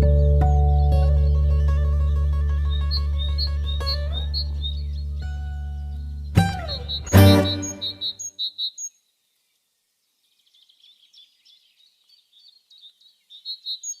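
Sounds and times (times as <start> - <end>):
high bird chirps: 2.6 - 8.9
background music final chord: 6.4 - 8.1.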